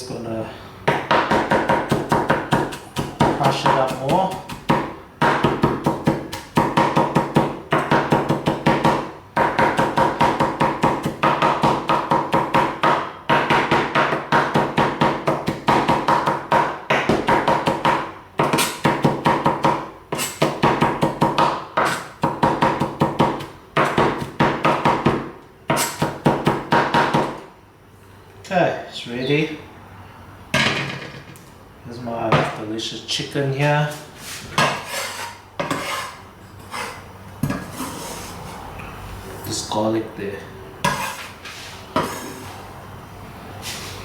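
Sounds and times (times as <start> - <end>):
knife chopping on cutting board: 0.9 - 27.4, 34.6 - 38.0.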